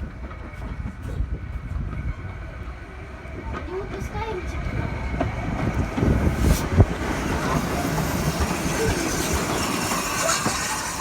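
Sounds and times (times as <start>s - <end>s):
train wheels rumbling on rails: 0.0s - 11.0s
faint wheel squeals: 7.4s - 11.0s.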